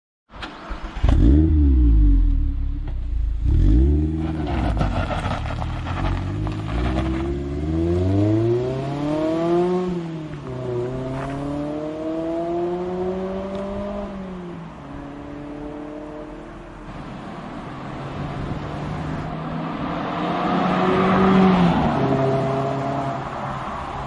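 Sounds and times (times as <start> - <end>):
car engine accelerating: 0.4 - 23.6.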